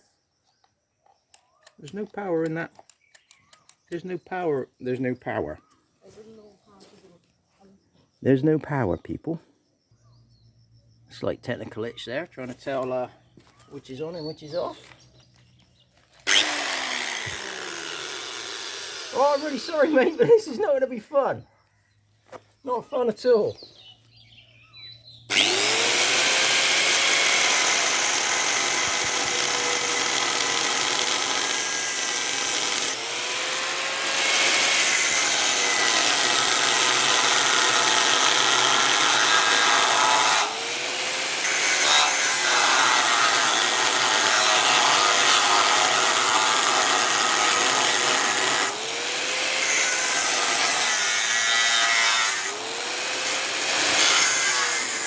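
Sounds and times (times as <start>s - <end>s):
power tool cutting steel: 16.2s - 20.4s, 25.3s - 55.0s.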